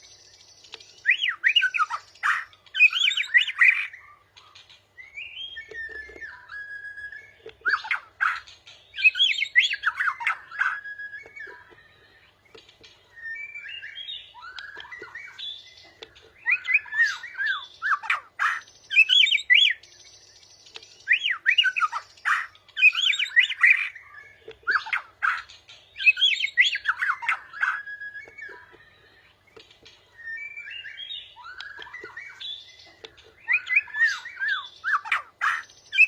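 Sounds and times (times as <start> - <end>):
songbirds singing whistled phrases: 0.0 - 36.0.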